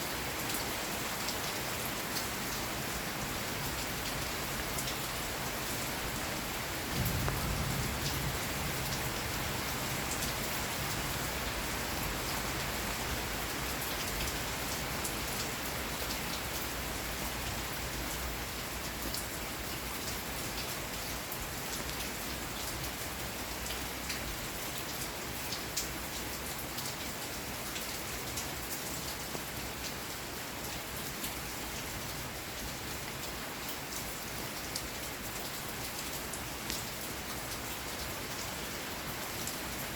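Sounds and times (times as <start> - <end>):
steady rain falling: 0.0 - 39.9
low rumble of thunder: 6.7 - 12.0.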